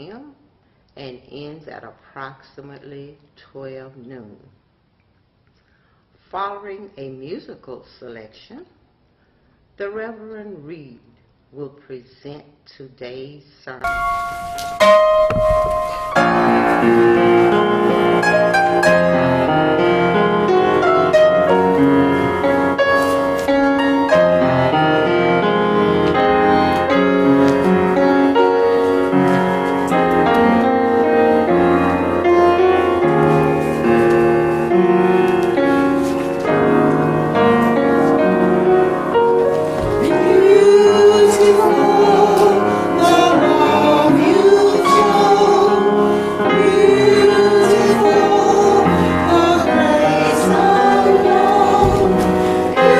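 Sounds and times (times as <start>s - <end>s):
instrumental piano music: 13.8s - 52.9s.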